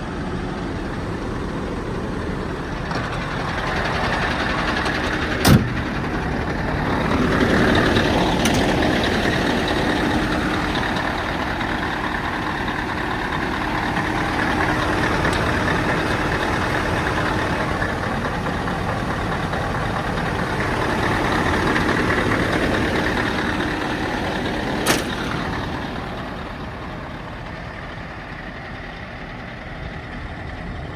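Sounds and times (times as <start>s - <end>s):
diesel engine running: 0.0s - 30.9s
sharp click: 24.8s - 25.5s.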